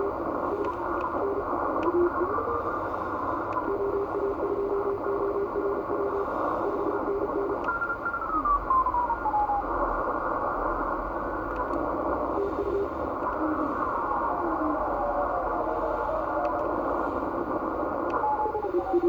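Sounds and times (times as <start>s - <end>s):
radio band hiss: 0.0s - 19.0s.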